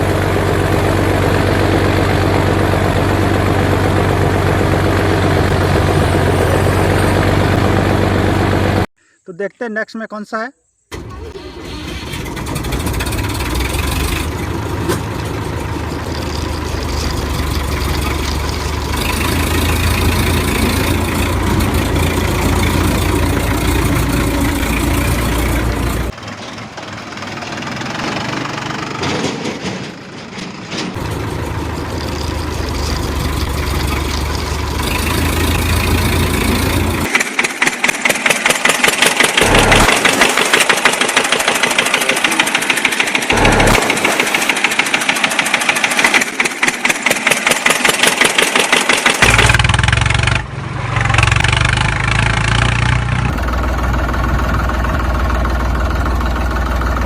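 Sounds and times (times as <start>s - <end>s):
toy engine starting and idling: 10.9s - 26.2s, 31.0s - 50.4s
fast regular knocking pulse: 43.3s - 45.3s.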